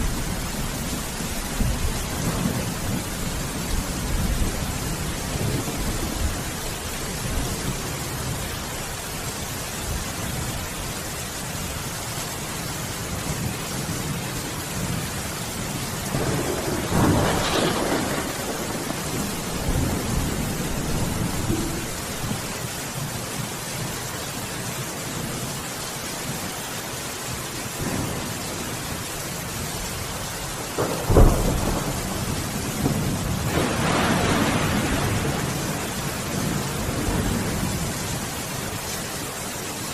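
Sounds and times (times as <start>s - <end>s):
heavy rain: 0.0s - 39.9s
rolling thunder: 14.8s - 22.5s, 30.8s - 38.2s
sharp thunderclap: 16.1s - 21.9s, 30.8s - 37.4s.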